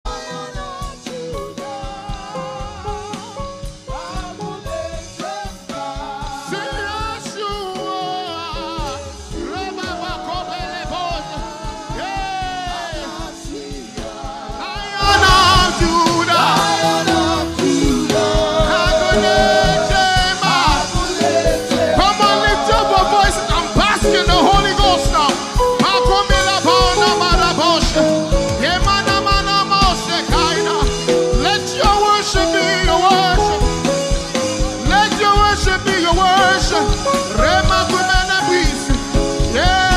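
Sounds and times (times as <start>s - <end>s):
band with steady beat: 0.1s - 39.9s
person singing: 14.6s - 39.9s.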